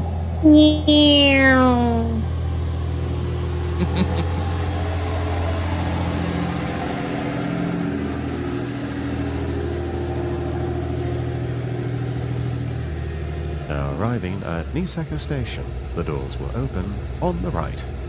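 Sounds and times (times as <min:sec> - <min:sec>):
diesel train engine humming: 0:00.0 - 0:18.0.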